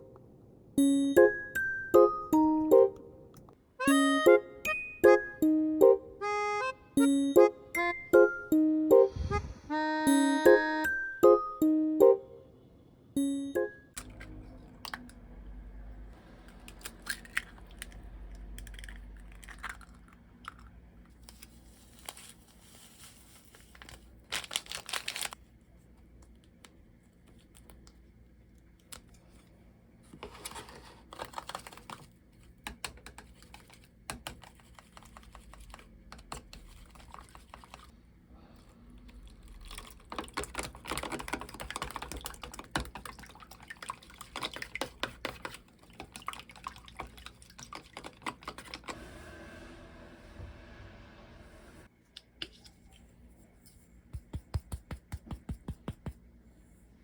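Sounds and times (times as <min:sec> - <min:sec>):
rustling and handling noise: 0:21.1 - 0:38.0
typing on a computer keyboard: 0:39.8 - 0:43.4.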